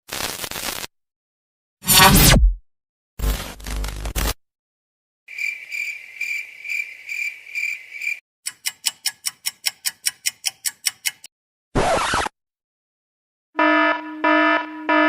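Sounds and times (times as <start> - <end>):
cricket chirping trill: 5.3 - 8.2
sharp ticks: 8.5 - 11.3.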